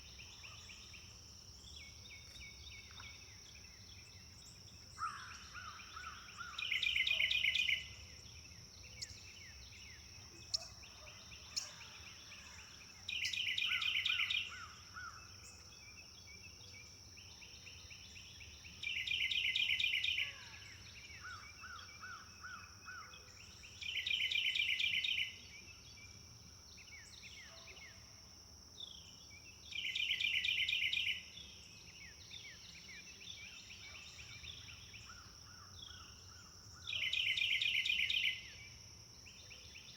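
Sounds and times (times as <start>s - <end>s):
songbird rapid trill: 0.0s - 8.1s, 16.8s - 26.2s, 28.8s - 39.9s.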